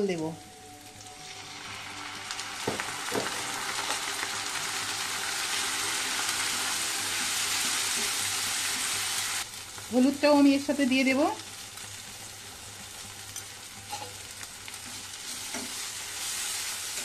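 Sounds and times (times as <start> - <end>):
onions sizzling in hot oil: 0.0 - 17.0
spatula knocking on pan: 2.6 - 3.4.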